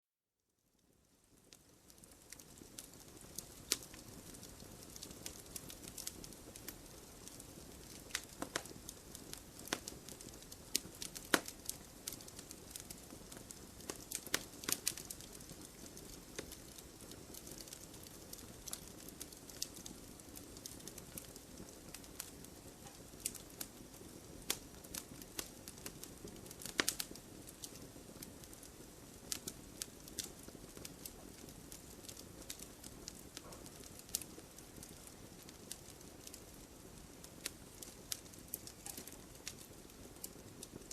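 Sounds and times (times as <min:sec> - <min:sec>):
campfire crackling and popping: 0:00.8 - 0:40.9
fire hissing: 0:02.0 - 0:33.2.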